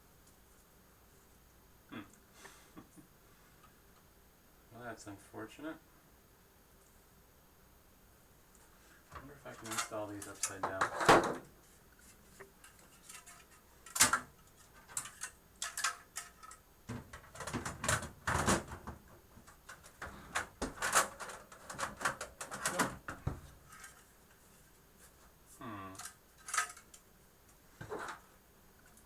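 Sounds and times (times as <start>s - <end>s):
hardware clicking and rattling in metal case: 12.6s - 24.1s, 26.0s - 27.0s.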